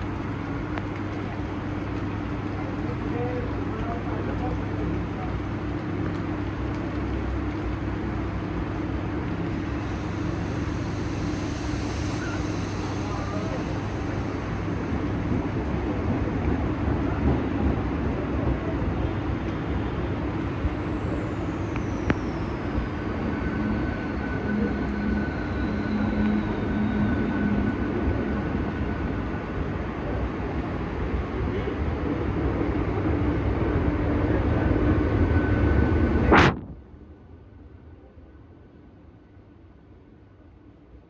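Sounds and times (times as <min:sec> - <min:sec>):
train rumbling: 0:00.0 - 0:37.1
high whine falling in pitch: 0:36.2 - 0:36.8.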